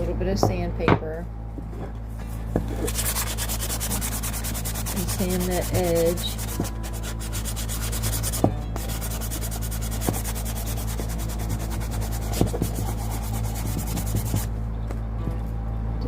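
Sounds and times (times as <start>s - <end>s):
sandpaper rubbing on wood: 2.8s - 14.5s.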